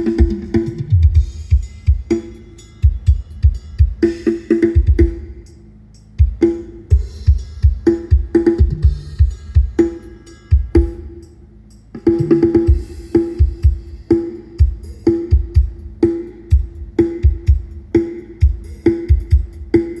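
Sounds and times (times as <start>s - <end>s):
kick drum thumps: 0.0s - 2.2s, 2.8s - 5.3s, 6.2s - 9.9s, 12.4s - 19.9s.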